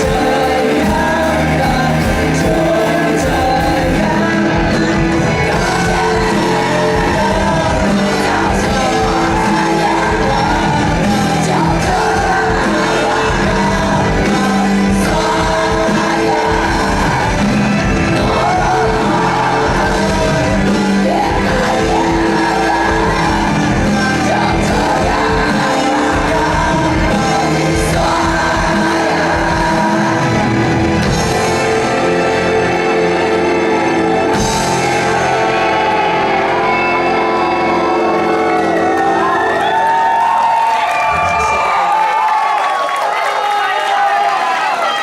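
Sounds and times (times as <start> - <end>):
rock band playing: 0.0 - 42.6
lead singer singing: 0.0 - 45.0.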